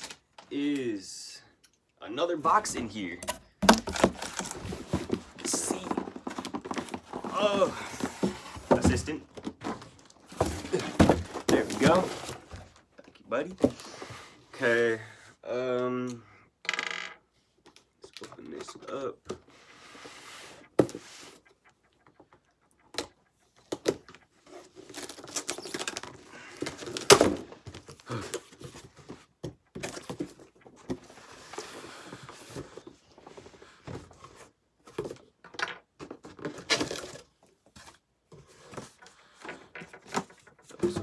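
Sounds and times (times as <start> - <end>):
cardboard rustling and scraping: 2.5 - 12.8, 24.4 - 35.2, 36.2 - 41.0
cardboard box tearing: 3.6 - 8.9, 10.3 - 12.5.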